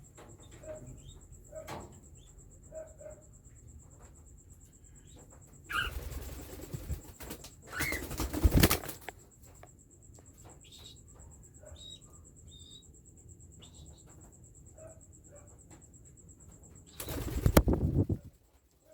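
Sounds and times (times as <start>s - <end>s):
birds flapping wings: 5.7s - 9.1s, 17.0s - 18.3s.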